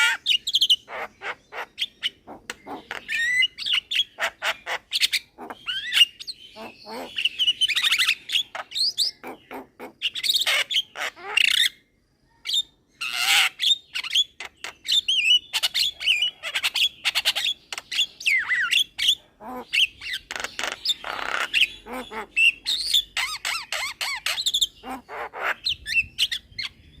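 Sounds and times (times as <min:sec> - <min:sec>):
myna chattering: 0:00.9 - 0:07.4, 0:19.0 - 0:22.6.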